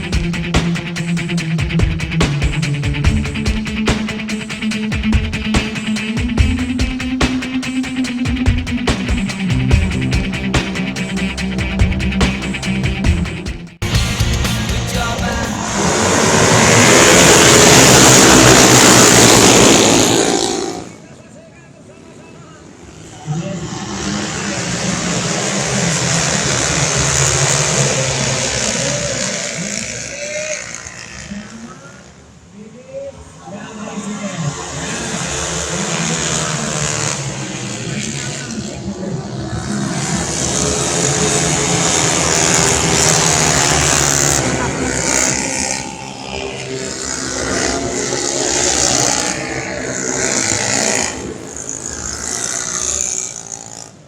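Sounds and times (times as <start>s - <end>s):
scooter engines passing at full throttle: 14.8s - 21.2s, 21.8s - 54.0s.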